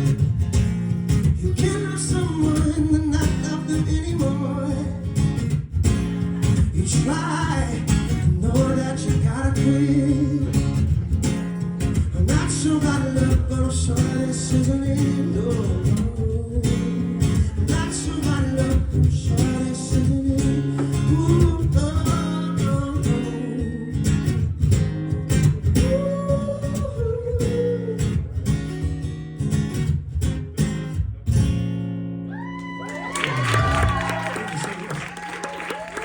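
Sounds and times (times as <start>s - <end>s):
acoustic guitar strumming: 0.0s - 32.3s
wordless singing: 6.8s - 10.5s.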